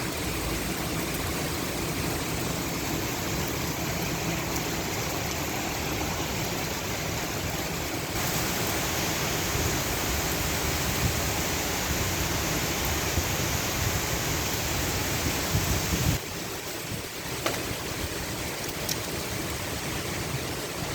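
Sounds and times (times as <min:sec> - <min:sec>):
heavy rain pouring: 0:00.0 - 0:20.9.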